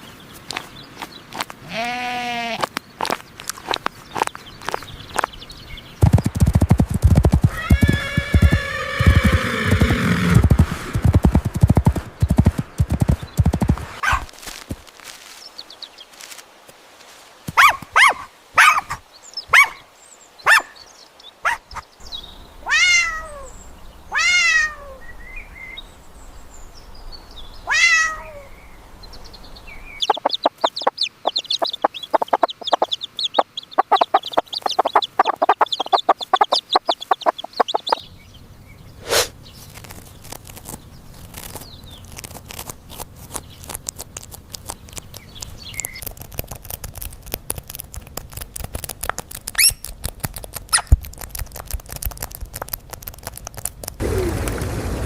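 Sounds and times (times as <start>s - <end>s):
rapid short animal calls: 6.0s - 11.6s, 30.0s - 38.0s
hen clucking: 6.0s - 14.2s, 30.0s - 38.1s
cat meowing: 22.7s - 23.5s, 24.1s - 25.0s, 27.7s - 28.5s.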